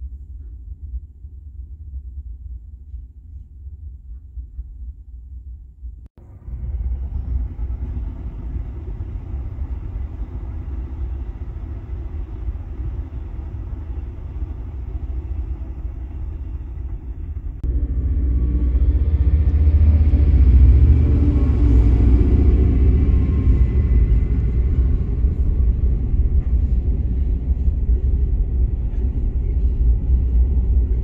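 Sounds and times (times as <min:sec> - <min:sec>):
faint low rumble: 0:00.0 - 0:31.0
train wheels rushing on rail: 0:06.2 - 0:31.0.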